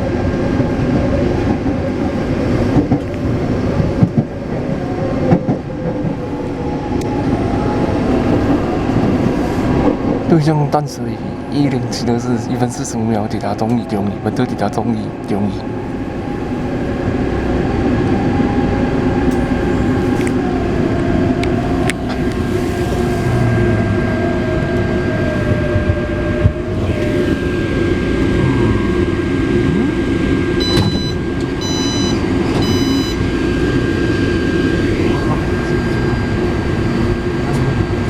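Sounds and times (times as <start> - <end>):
train wheels rumbling on rails: 0.0 - 38.0
traction motor whine: 15.8 - 38.0
short electronic beeps: 30.6 - 33.2.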